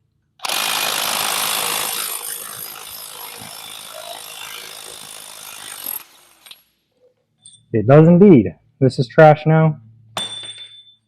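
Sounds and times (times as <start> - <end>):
impact wrench hammering: 0.4 - 6.6.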